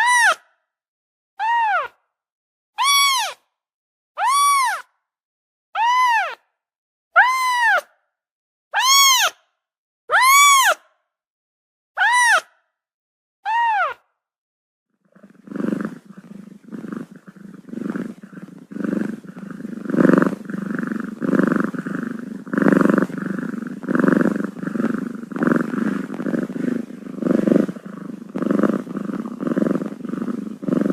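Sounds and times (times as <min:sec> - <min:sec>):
cat purring: 0:15.1 - 0:30.9
kitten mewing: 0:15.3 - 0:30.9.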